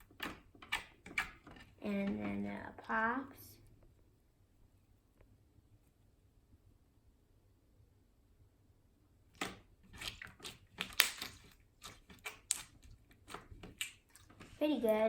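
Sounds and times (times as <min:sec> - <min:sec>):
slime squeezed popping and clicking: 0:09.4 - 0:12.7.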